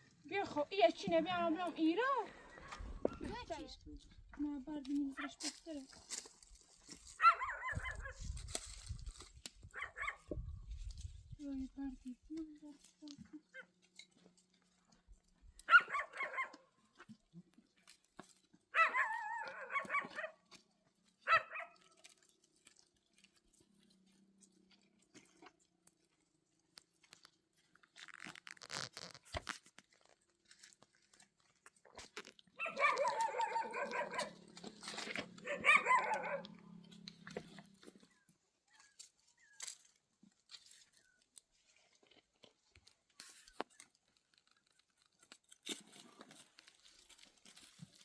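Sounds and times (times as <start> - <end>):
rustling crunching noise: 0.0 - 48.0
dog calling: 7.2 - 8.2, 9.7 - 10.3, 15.7 - 16.7, 18.7 - 20.4, 21.3 - 21.8, 32.6 - 36.9.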